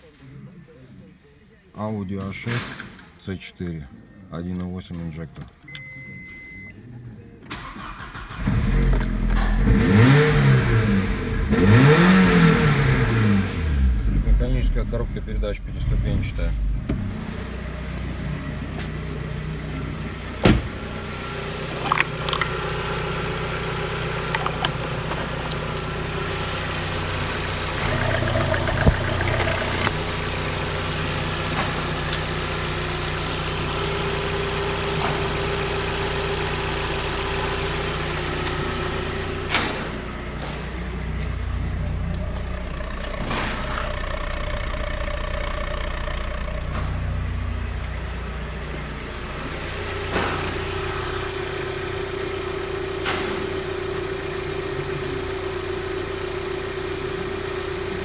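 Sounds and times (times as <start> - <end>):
car engine idling: 12.6 - 58.0.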